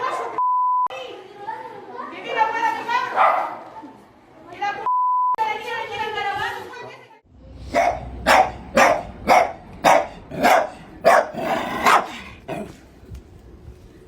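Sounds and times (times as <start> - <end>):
dog barking: 3.2 - 3.6, 7.6 - 12.8.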